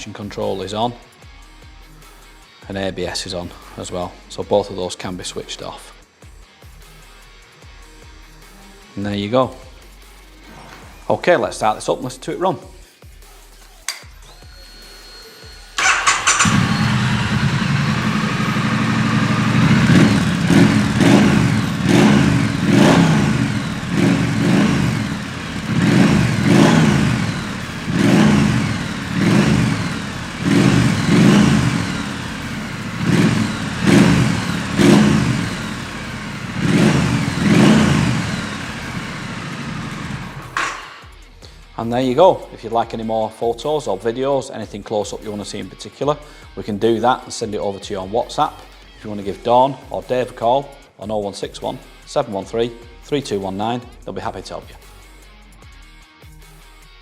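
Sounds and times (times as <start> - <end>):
motorcycle engine starter cranking: 15.8 - 41.1
motorcycle engine idling and revving: 15.8 - 41.2.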